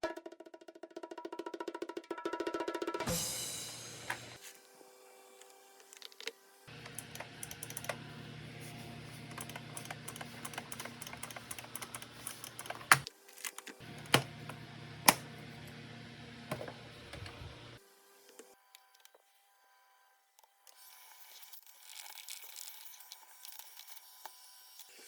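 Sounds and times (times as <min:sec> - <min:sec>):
small plastic parts clicking: 0:06.2 - 0:08.1, 0:09.1 - 0:15.2.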